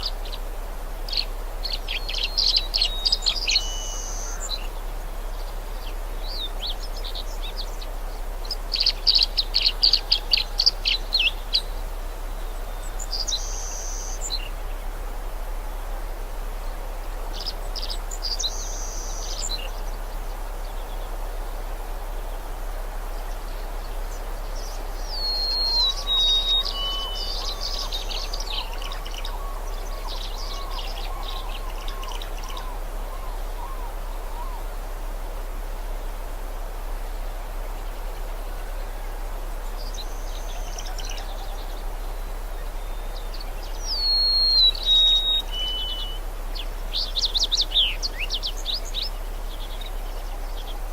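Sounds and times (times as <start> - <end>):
small birds chirping and trilling: 0.0 - 14.8, 23.1 - 34.7, 37.2 - 50.9
rushing background hiss: 0.0 - 50.9.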